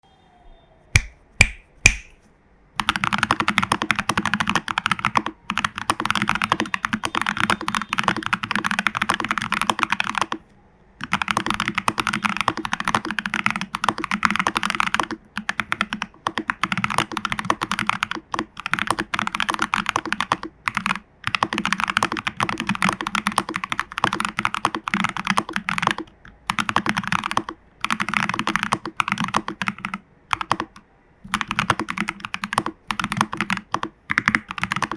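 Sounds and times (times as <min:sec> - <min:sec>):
mechanical keyboard typing: 0:02.8 - 0:10.4, 0:11.0 - 0:34.9.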